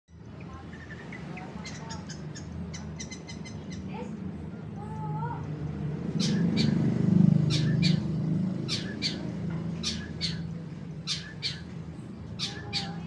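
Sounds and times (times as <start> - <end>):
bird harsh call notes: 6.2 - 13.0.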